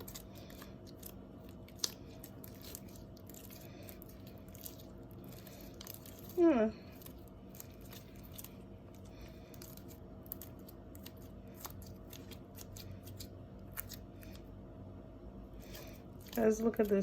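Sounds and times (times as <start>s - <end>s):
slime clicking and snapping: 0.0s - 6.4s
low background hum: 0.0s - 17.0s.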